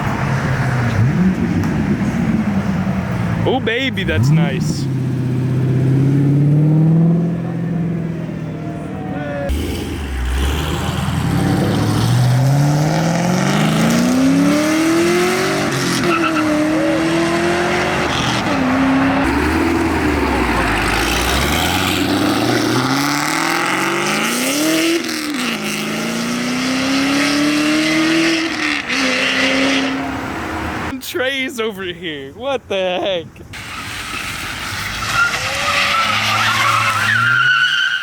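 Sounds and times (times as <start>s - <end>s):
car engine revving and accelerating: 0.1s - 3.4s, 4.1s - 30.9s.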